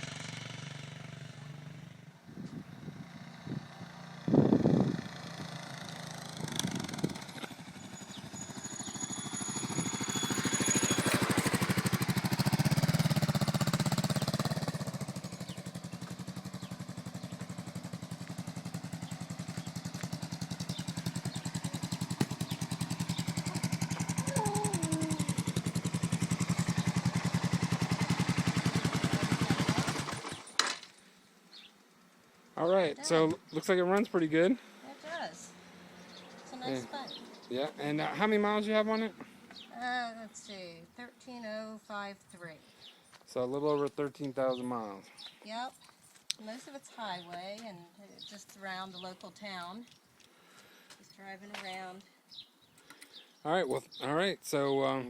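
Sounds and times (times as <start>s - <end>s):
motorcycle engine idling: 0.0s - 30.6s.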